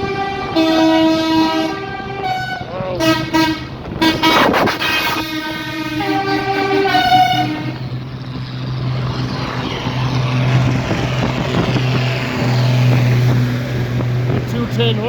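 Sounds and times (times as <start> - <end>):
vehicle horn: 0.0 - 7.9
tractor engines running: 0.0 - 15.0.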